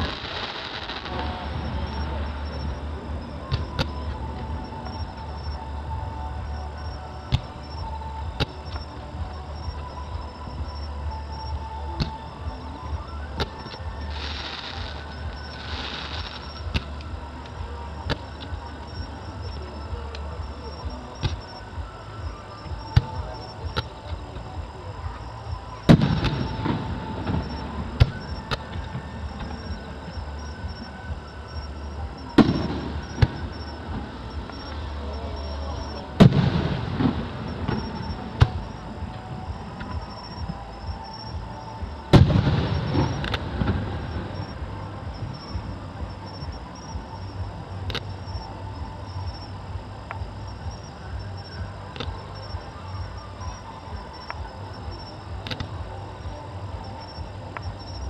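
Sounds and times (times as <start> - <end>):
firework pops and crackles: 25.9 - 29.6, 42.1 - 44.2.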